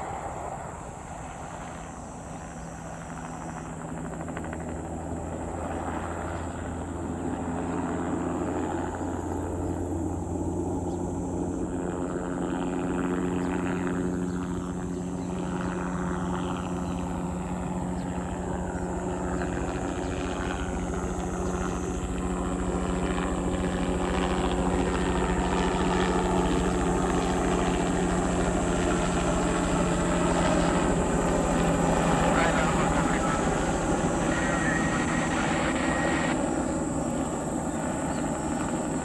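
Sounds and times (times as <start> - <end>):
helicopter engine and rotor: 0.0 - 39.0.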